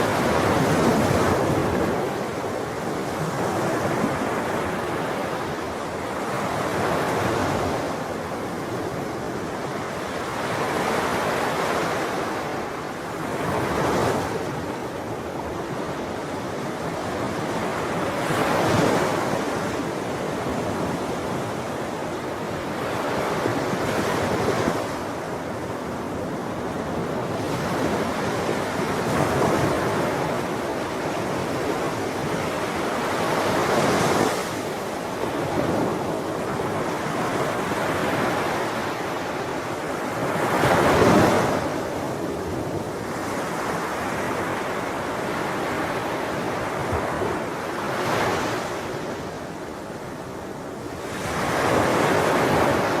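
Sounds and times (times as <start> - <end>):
sea waves breaking on shore: 0.0 - 53.0.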